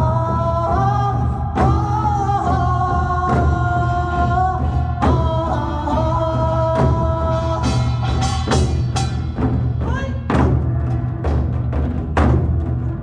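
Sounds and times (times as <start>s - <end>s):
drums struck: 6.7s - 13.0s.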